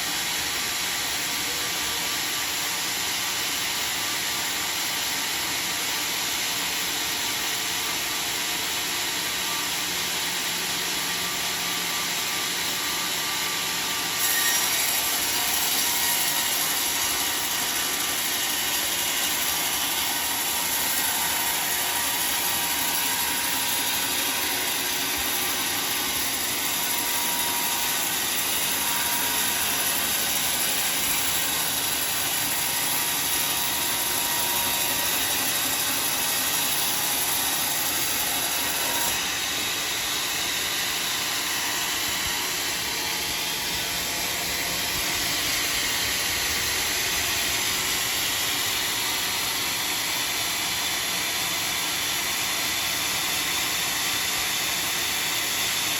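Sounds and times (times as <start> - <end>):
saw blade cutting through wood: 0.0 - 55.9.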